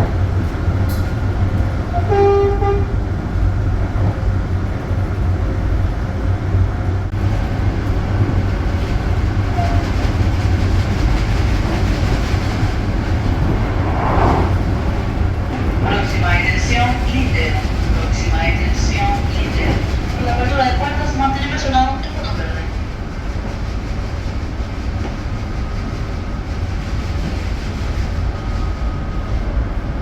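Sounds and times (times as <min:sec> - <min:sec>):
train rumbling: 0:00.0 - 0:30.0
train horn toot: 0:01.9 - 0:03.0.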